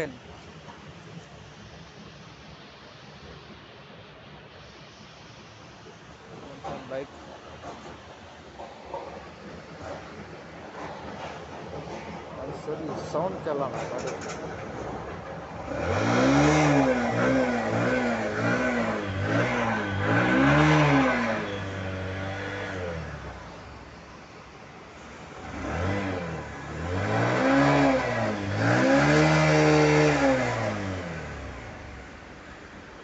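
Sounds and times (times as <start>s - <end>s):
motorcycle engine revving: 15.6s - 23.7s, 25.3s - 32.1s.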